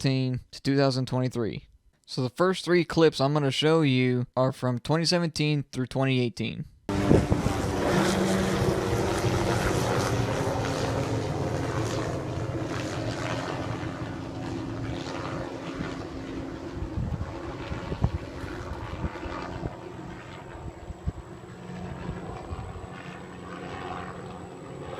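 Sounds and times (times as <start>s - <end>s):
helicopter rotor drone: 6.9s - 24.9s.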